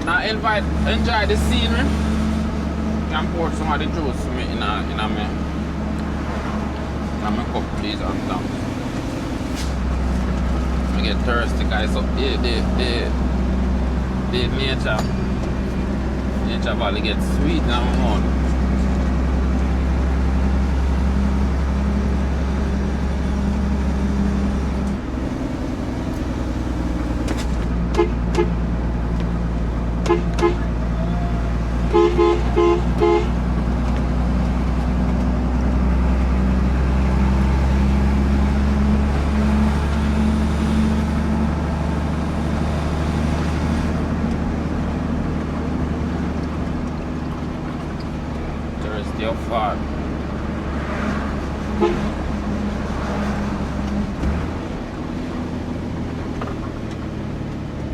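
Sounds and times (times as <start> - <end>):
truck engine running: 0.0 - 57.9
vehicle horn tooting: 27.9 - 28.8, 30.0 - 33.5, 51.8 - 52.3.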